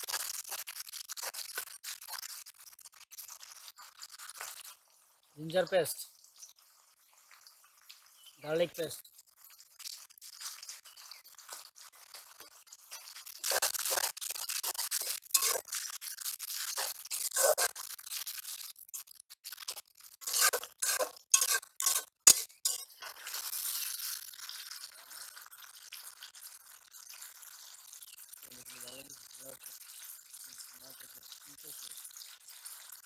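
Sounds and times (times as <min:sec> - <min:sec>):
frying hiss: 0:00.0 - 0:33.0
metal spatula scraping a wok: 0:11.6 - 0:18.6, 0:19.6 - 0:24.2.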